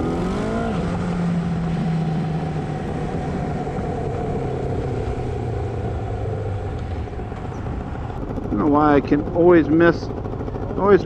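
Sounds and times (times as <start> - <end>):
motorcycle engine pulling away: 0.0 - 10.8
wind and road noise: 0.0 - 11.0
man talking: 8.5 - 10.1, 10.8 - 11.0.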